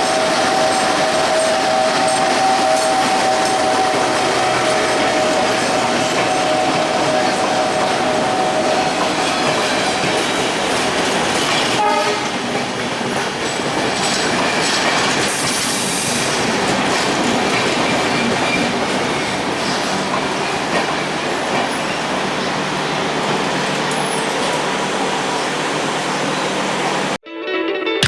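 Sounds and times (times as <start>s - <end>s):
horn-like tone: 0.0s - 9.9s, 11.8s - 12.4s
train wheels clattering on rails: 0.0s - 27.2s.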